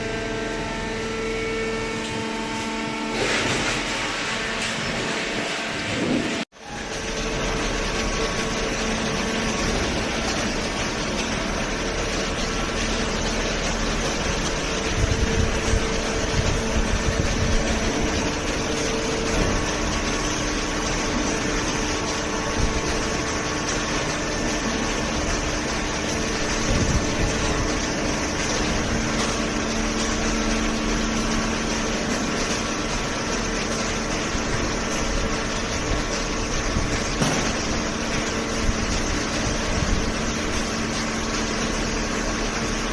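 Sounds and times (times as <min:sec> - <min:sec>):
baling press machine hum: 0:00.0 - 0:42.9
motor and pump whir: 0:00.0 - 0:42.9
loud machine thumps: 0:37.0 - 0:38.0.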